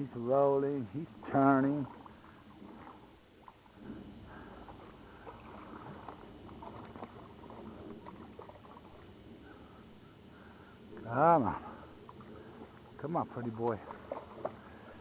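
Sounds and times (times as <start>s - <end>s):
fish splashing in water: 1.8s - 9.7s, 11.6s - 15.0s.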